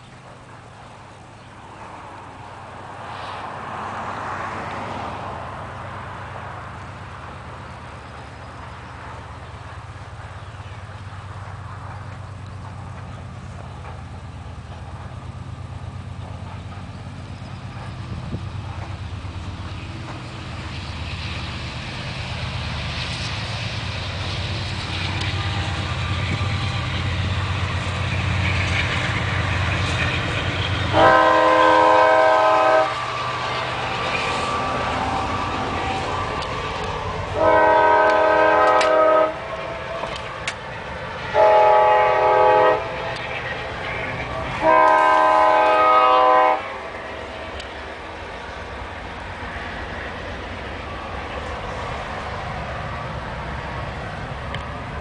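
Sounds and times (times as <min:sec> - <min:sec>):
multi-tone air horn blasts: 0:30.9 - 0:33.0, 0:37.4 - 0:39.4, 0:41.3 - 0:42.9, 0:44.6 - 0:46.8.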